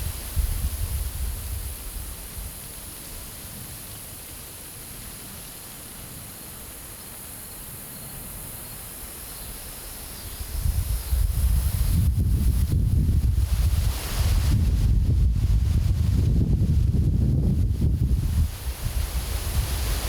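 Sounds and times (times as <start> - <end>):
wind buffeting microphone: 0.0 - 2.6, 10.3 - 20.0
wind rushing over grass: 0.0 - 4.4, 10.3 - 20.0.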